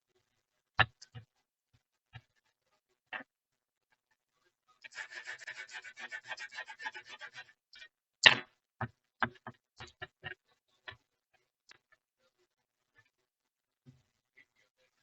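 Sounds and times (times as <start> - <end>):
brush scrubbing: 4.8 - 7.6
sharp knock: 8.2 - 8.5.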